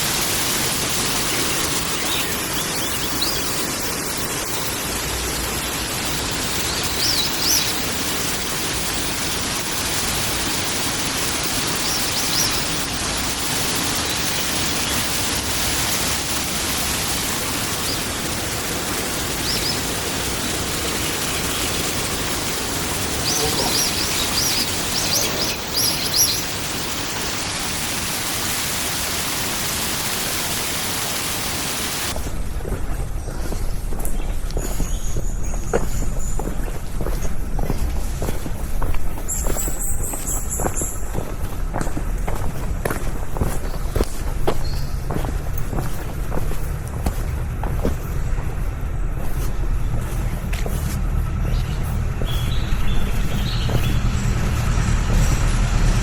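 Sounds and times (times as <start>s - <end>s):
stream rushing: 0.0s - 32.8s, 36.9s - 56.0s
high bird chirps: 0.9s - 4.9s, 5.5s - 9.2s, 19.3s - 27.3s, 39.2s - 41.2s, 51.4s - 54.7s.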